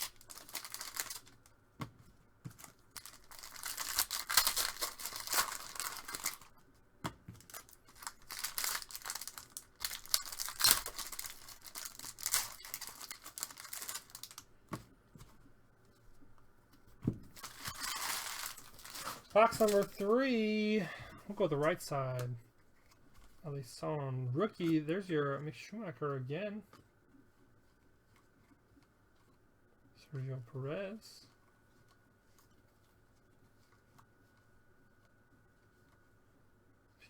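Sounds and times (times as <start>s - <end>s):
foil wrappers tearing and crinkling: 0.0s - 1.5s, 2.5s - 6.6s, 7.4s - 14.5s, 17.4s - 20.2s.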